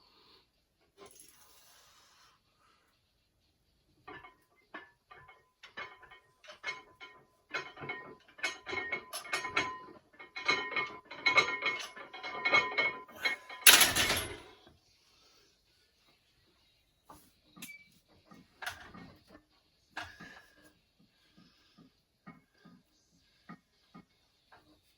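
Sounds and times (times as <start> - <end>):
metallic clinks and clanks: 4.1 - 14.6.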